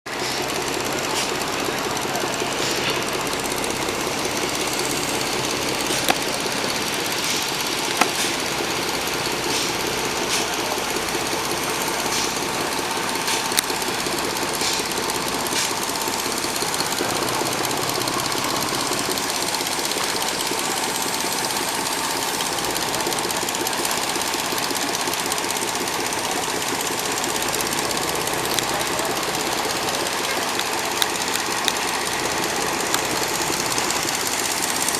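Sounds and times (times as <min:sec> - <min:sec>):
engine knocking clatter: 0:00.0 - 0:34.9
sharp clicks: 0:00.5 - 0:10.5, 0:27.0 - 0:34.9.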